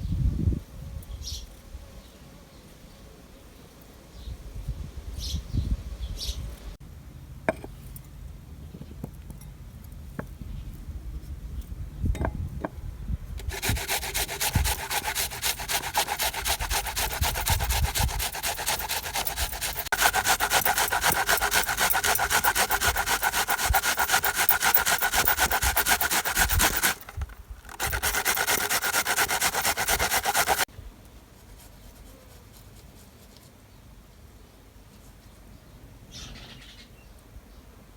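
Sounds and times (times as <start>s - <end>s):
rhythmic scraping: 13.4s - 30.7s.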